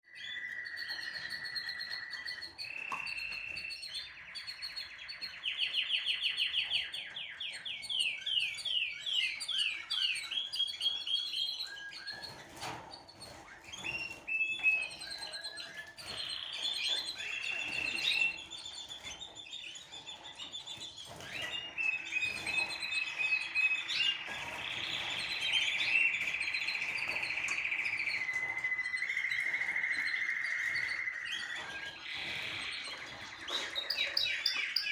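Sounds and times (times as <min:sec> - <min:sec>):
songbird trilling: 0:21.2 - 0:34.9.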